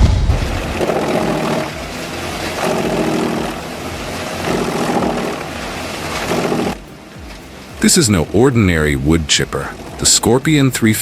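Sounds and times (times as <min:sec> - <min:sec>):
wood chipper running: 0:00.0 - 0:08.0.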